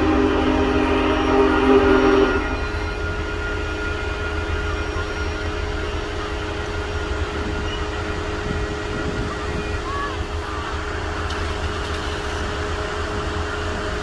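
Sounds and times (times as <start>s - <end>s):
steam train rumbling: 0.0s - 14.0s.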